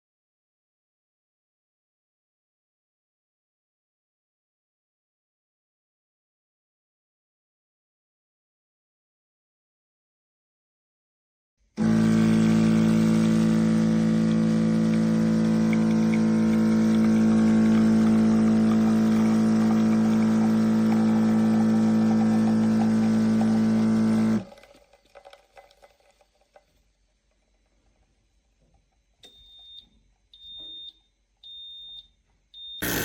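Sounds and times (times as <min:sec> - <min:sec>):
espresso machine pump buzzing: 0:11.8 - 0:24.6.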